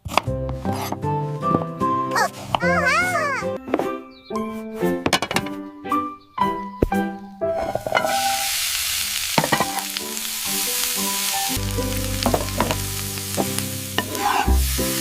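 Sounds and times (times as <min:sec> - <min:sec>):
light background music: 0:00.0 - 0:08.5, 0:09.4 - 0:15.0
high sizzling hiss: 0:07.8 - 0:15.0
low bass line: 0:11.6 - 0:13.4.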